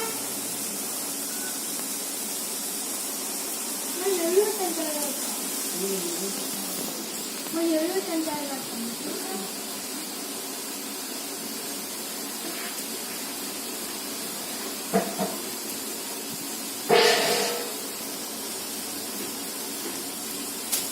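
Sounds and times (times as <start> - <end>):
steady hiss: 0.0 - 20.9.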